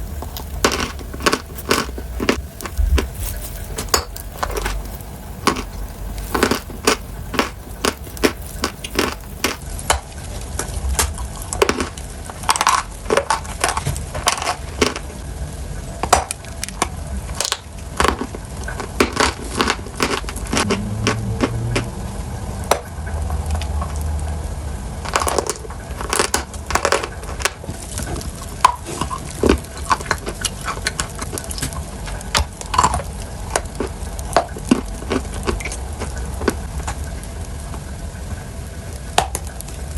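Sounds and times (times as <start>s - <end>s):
sharp crunching and crackling: 0.0s - 15.4s, 16.0s - 24.2s, 25.0s - 39.9s.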